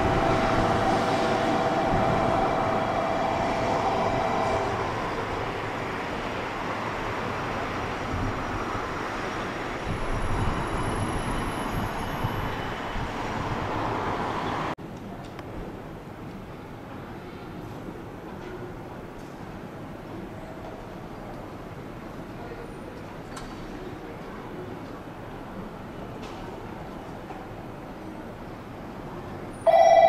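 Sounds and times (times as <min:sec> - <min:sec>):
train running with whine: 0:00.0 - 0:14.7, 0:29.5 - 0:30.0
distant train noise: 0:00.0 - 0:15.0.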